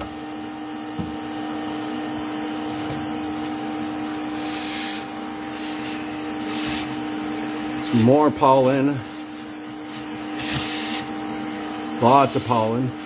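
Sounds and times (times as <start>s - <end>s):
vacuum motor drone: 0.0s - 13.0s
hissing rush of suction: 4.4s - 7.0s.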